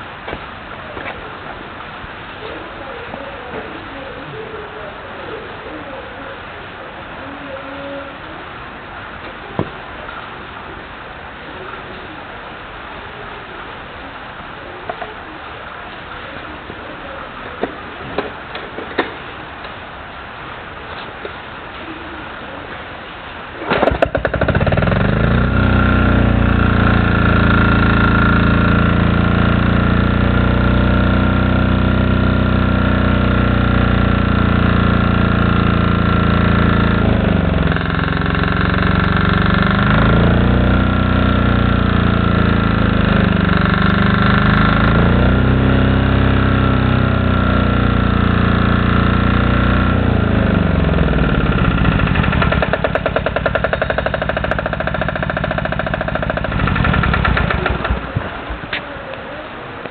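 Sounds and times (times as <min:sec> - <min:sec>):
diesel engine running: 0:23.8 - 0:58.8.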